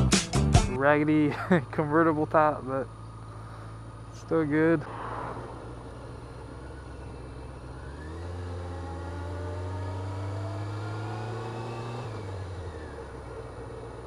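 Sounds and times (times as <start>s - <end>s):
road noise: 0.0s - 14.0s
motorcycle engine accelerating: 2.8s - 14.0s.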